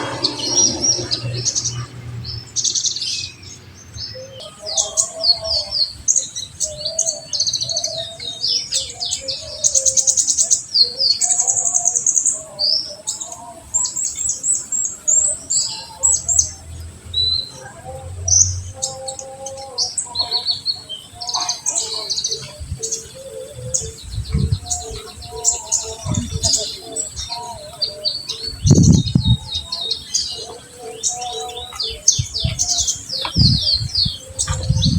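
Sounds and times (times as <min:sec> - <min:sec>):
low thumps: 0:00.0 - 0:02.6, 0:24.0 - 0:25.1, 0:32.2 - 0:34.9
soft low warbling: 0:00.0 - 0:02.8, 0:22.6 - 0:27.3, 0:28.5 - 0:29.7, 0:32.2 - 0:34.9
bird singing rapid high chirps: 0:13.9 - 0:34.9.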